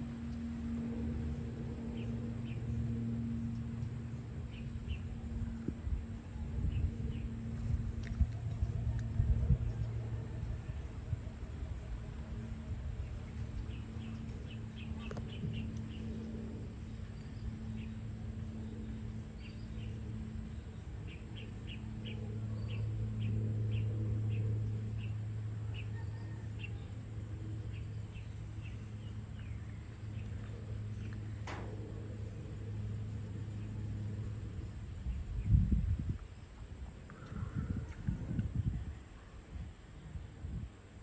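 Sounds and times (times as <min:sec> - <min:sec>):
low drone: 0:00.0 - 0:41.0
small birds chirping: 0:13.0 - 0:38.9.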